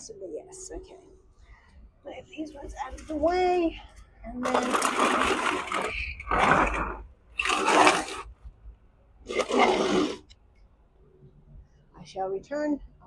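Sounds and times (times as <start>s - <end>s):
plant pots scraping on floor: 4.3s - 8.4s, 9.2s - 10.4s.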